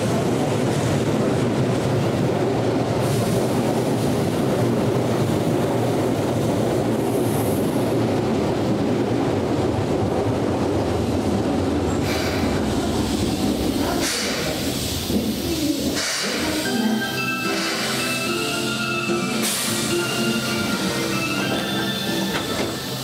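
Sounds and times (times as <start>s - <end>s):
train wheels rumbling on rails: 0.0s - 23.0s
hiss: 3.0s - 4.1s, 12.0s - 16.7s.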